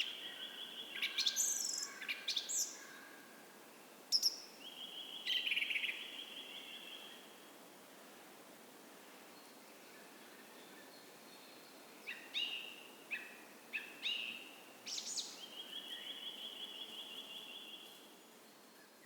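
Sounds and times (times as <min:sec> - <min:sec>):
songbird singing with rapid trill: 0:00.0 - 0:02.9, 0:04.1 - 0:07.2, 0:10.6 - 0:18.0.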